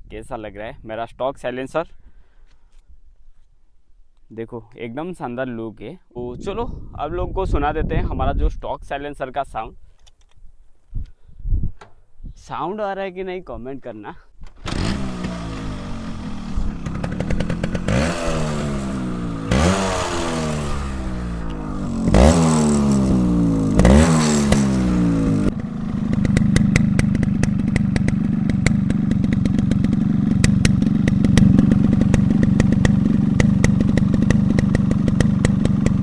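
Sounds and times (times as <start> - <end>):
two-stroke motorcycle engine revving: 14.6 - 36.0.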